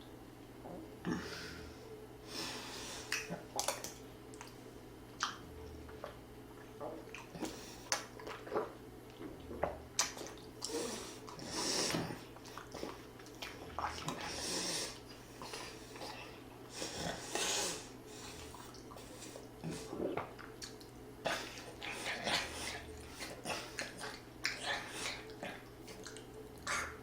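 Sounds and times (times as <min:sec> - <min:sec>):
breathy hisses: 0:01.1 - 0:03.2, 0:10.6 - 0:13.0, 0:14.2 - 0:20.0
chewing and slurping: 0:05.2 - 0:27.0.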